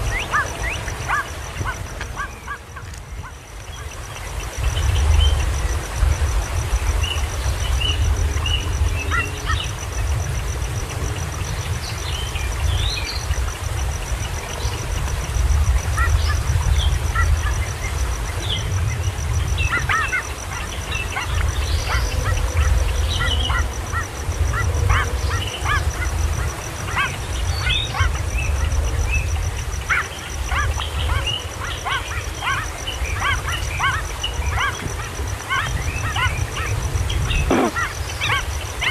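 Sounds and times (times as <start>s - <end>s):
young kingfishers squeaky calls: 37.4s - 38.4s.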